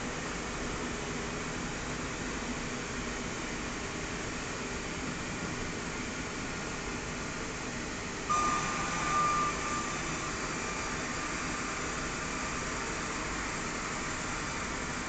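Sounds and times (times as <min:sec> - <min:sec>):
high whine: 0:08.3 - 0:15.0.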